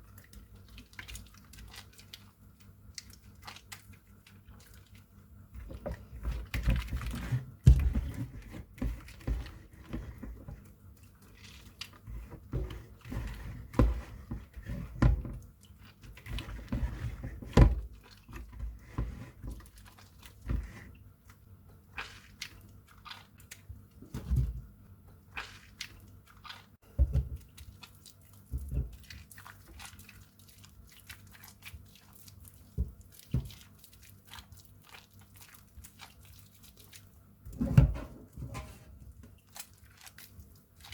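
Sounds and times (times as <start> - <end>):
soap crunching and cracking: 21.2 - 24.2, 25.3 - 26.8, 27.4 - 37.2.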